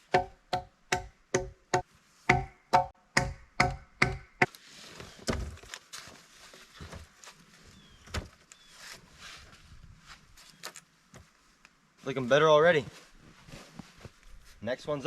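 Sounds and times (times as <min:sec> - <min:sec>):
knocks and rustling of wood pieces: 0:04.4 - 0:09.6.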